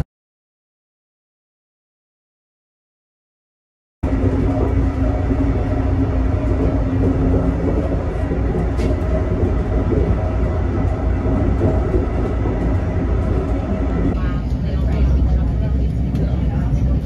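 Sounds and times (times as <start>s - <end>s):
low rumble of train: 4.0s - 17.0s.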